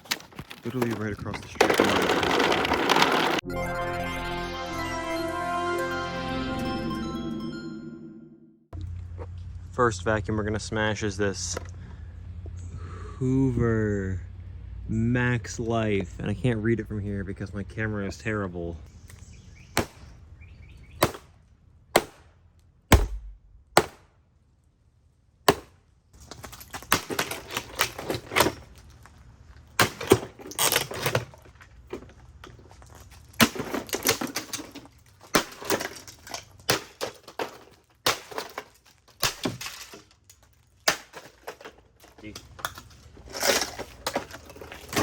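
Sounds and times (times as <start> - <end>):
blows smashing plastic vacuum: 0.0 - 3.4
plastic cracking and breaking: 0.0 - 3.4, 33.2 - 45.0.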